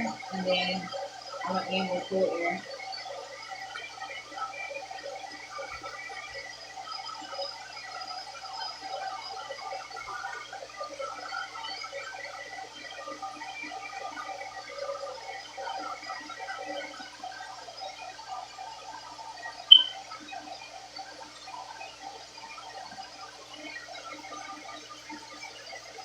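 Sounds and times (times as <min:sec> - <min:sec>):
brief sharp sound: 0:19.7 - 0:20.0.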